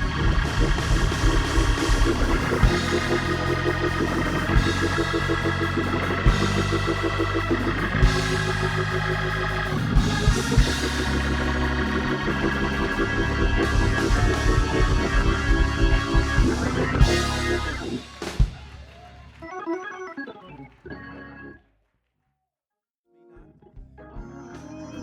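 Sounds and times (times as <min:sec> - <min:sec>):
drum hits: 0:00.0 - 0:07.2
bass line: 0:00.0 - 0:19.4
organ sustained chords: 0:00.0 - 0:21.6, 0:23.6 - 0:25.0.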